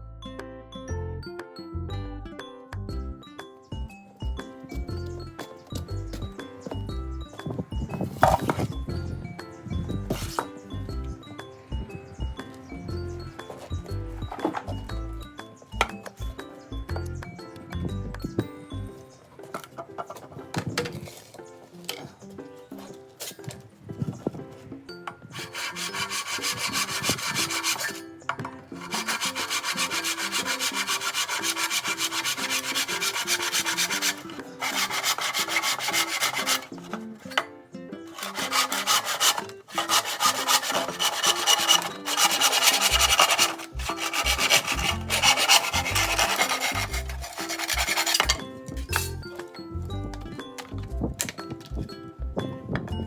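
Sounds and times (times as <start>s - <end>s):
faint background music: 0.0s - 53.0s
rasping strokes on bamboo: 10.1s - 10.6s, 25.3s - 28.1s, 28.7s - 37.4s, 38.1s - 48.4s.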